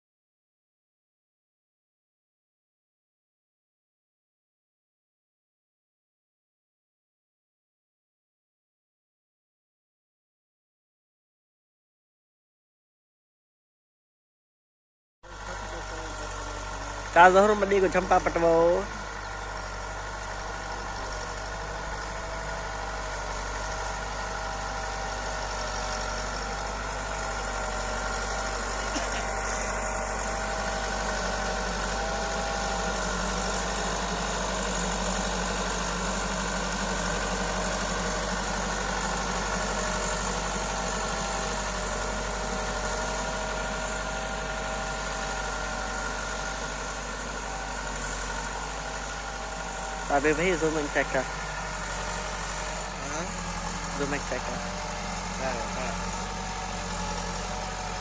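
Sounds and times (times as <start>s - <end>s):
tractor diesel engine running: 15.2s - 58.0s.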